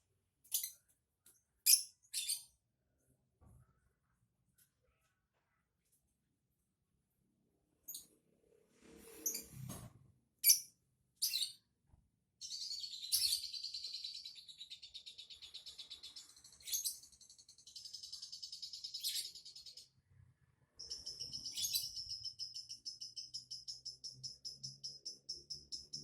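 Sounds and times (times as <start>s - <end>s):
songbird chirping and trilling: 1.6s - 2.6s, 10.4s - 11.7s, 12.4s - 20.1s, 20.8s - 26.0s.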